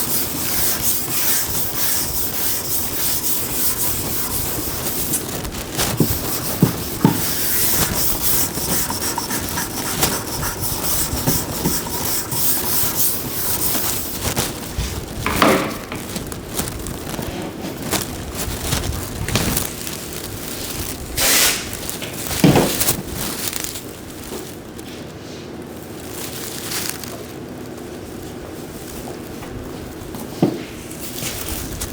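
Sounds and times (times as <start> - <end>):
sanding on car body panel: 0.0 - 14.3.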